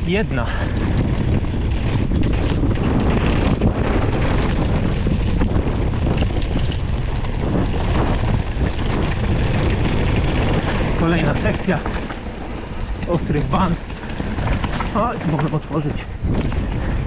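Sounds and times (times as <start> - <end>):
bike rattling over bumps: 0.0 - 17.0
tyres rolling on dirt trail: 0.0 - 17.0
wind rushing over microphone: 0.0 - 17.0.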